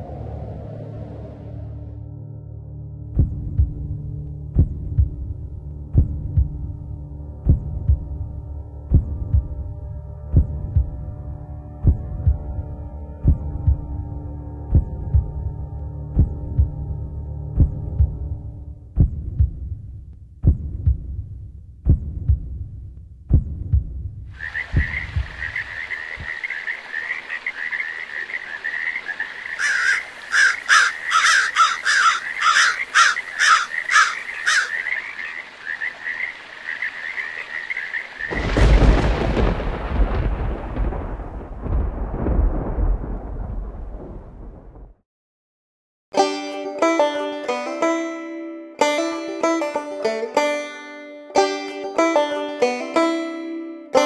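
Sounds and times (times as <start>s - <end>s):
loud rumble: 0.0s - 2.3s
low thumps: 3.0s - 6.8s, 7.4s - 26.3s.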